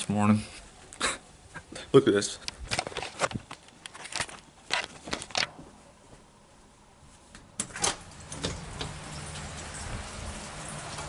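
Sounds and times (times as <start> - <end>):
rain falling: 8.0 - 11.0.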